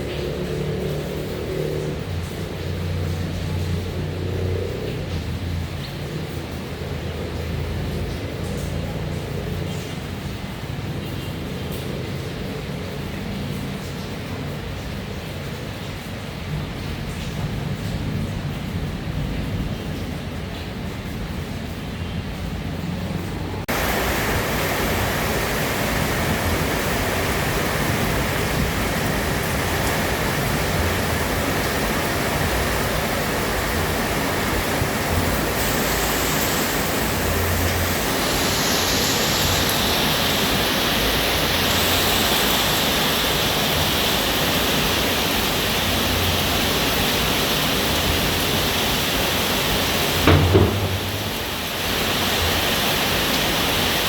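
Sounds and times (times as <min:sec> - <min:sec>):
steady rain falling: 0:00.0 - 0:54.0
loud knock: 0:50.3 - 0:51.6.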